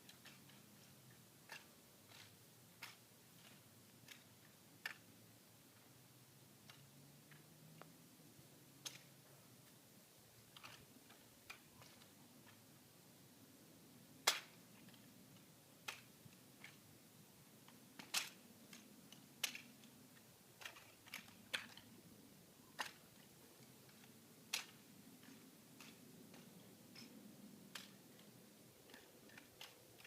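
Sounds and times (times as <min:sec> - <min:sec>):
rifle clacking in hands: 0:14.2 - 0:15.1, 0:17.6 - 0:19.9, 0:20.6 - 0:22.0, 0:22.8 - 0:30.0.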